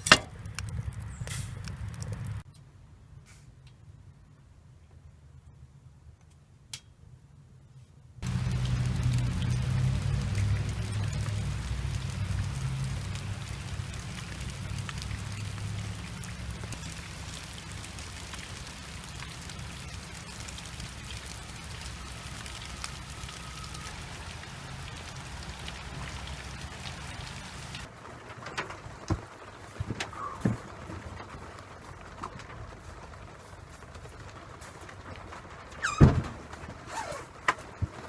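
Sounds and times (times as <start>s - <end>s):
rain pattering: 0.0s - 2.5s, 8.2s - 38.0s
low droning rumble: 8.2s - 36.9s.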